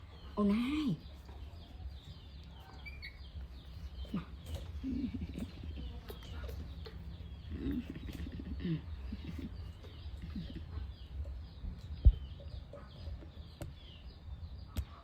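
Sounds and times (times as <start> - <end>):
steady low hum: 0.0 - 15.0
animal chirps: 2.5 - 14.0.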